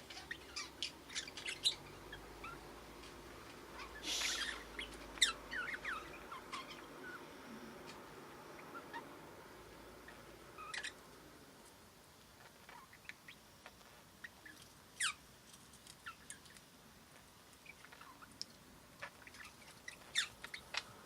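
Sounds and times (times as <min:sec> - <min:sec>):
budgerigars chirping and clicking: 0:00.1 - 0:07.2, 0:10.1 - 0:11.0, 0:12.4 - 0:15.2, 0:15.9 - 0:16.6, 0:17.2 - 0:21.0.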